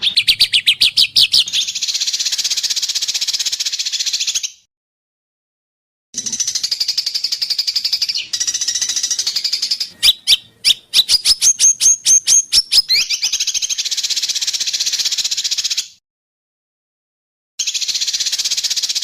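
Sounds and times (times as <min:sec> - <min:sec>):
sharp rising whistled bird notes: 0:00.0 - 0:04.7, 0:06.4 - 0:16.0
songbird trill: 0:00.0 - 0:04.7, 0:06.2 - 0:16.0, 0:17.6 - 0:19.0.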